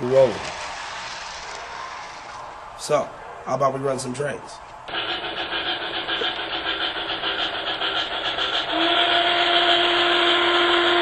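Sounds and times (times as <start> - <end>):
steam locomotive chuffing: 4.9 - 11.0
long steam whistle: 8.7 - 11.0.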